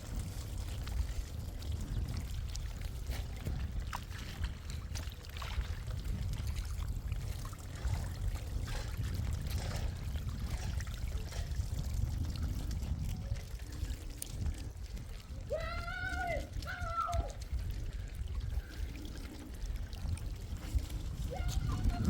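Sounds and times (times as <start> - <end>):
low rumble: 0.0 - 22.0
rainwater pouring and trickling: 0.0 - 22.0.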